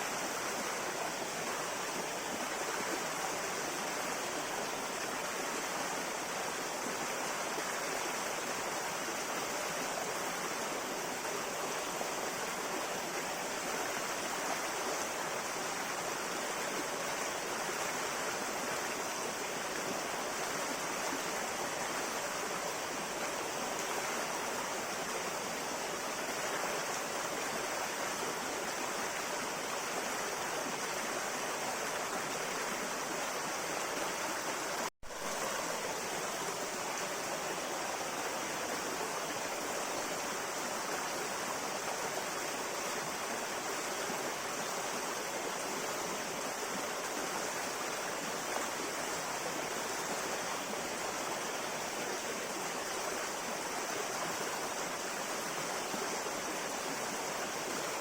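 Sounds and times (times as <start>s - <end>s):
river flowing: 0.0s - 58.0s.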